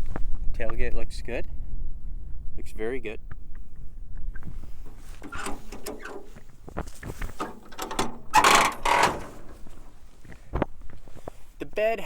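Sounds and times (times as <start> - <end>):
tailgate clattering: 4.9 - 10.4
metal tailgate clicking and rattling: 5.1 - 10.0.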